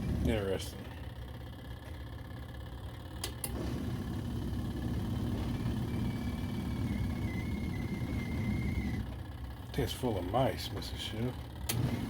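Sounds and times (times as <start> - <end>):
washing machine motor humming: 0.0 - 12.0
faint high whine: 4.9 - 10.6.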